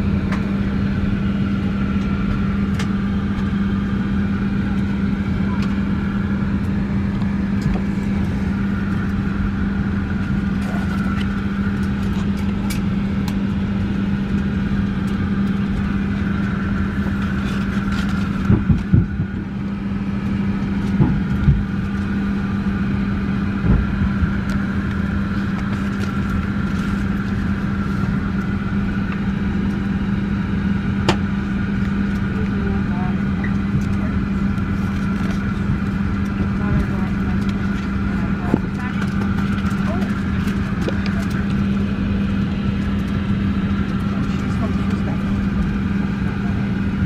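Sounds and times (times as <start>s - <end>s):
airliner cabin drone: 0.0s - 47.0s.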